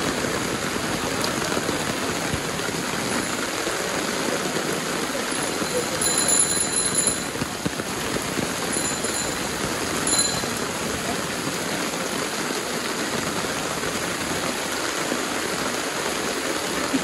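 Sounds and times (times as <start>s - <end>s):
torrential rain on a street: 0.0s - 17.0s
faint high rings: 5.4s - 7.4s, 8.7s - 10.7s.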